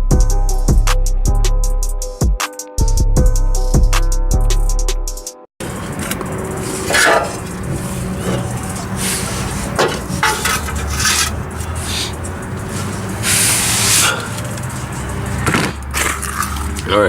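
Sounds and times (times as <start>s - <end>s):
scraping on exhaust parts: 5.6s - 17.0s.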